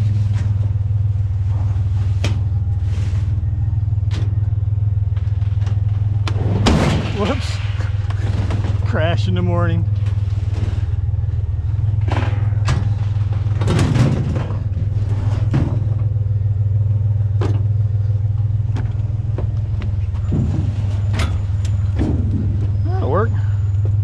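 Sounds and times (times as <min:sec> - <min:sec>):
vehicle engine humming: 0:00.0 - 0:24.0
knocks and clatters: 0:05.1 - 0:09.1, 0:11.9 - 0:16.5, 0:17.3 - 0:22.8.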